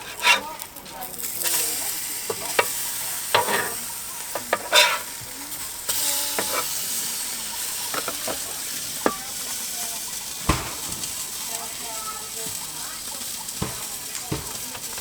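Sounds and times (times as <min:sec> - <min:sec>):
patties sizzling in frying pan: 0:00.0 - 0:15.0
utensil scraping pan: 0:00.0 - 0:15.0.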